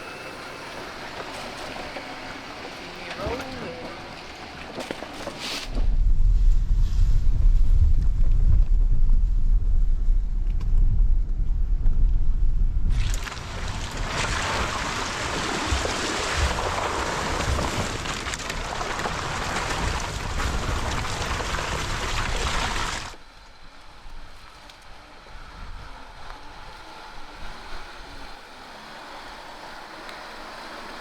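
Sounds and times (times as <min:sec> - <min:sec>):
rushing water: 0:13.0 - 0:23.2.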